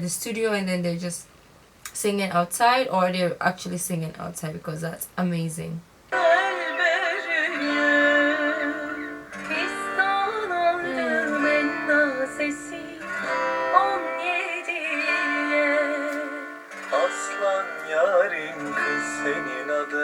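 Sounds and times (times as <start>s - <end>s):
person singing folk song: 6.1s - 20.0s
strummed guitar: 6.1s - 20.0s.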